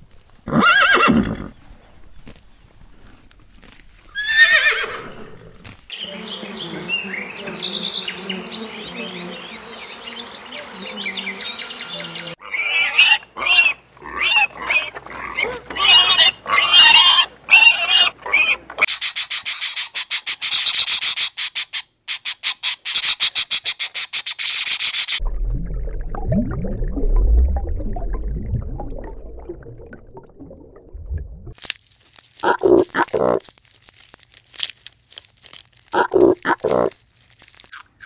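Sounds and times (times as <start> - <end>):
horse whinnying: 0.5 - 1.5, 4.1 - 5.5
pigs squealing: 12.0 - 20.9, 32.4 - 33.4, 35.9 - 37.0.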